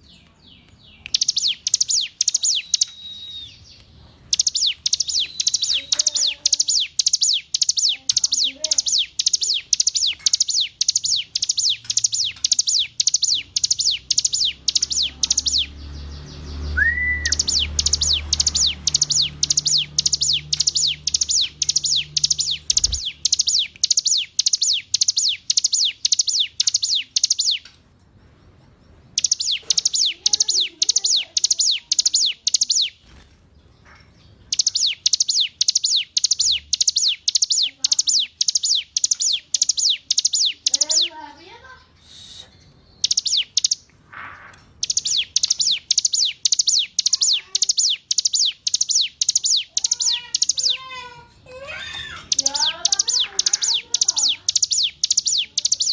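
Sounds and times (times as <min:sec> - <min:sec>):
bird singing high chirps: 0:00.0 - 0:27.8, 0:29.1 - 0:33.2, 0:33.8 - 0:43.9, 0:44.6 - 0:55.9
short rising whistle: 0:16.8 - 0:17.3.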